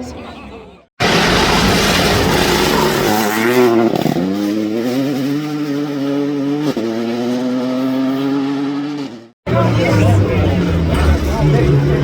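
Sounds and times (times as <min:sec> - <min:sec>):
rally car engine revving: 0:01.0 - 0:12.0.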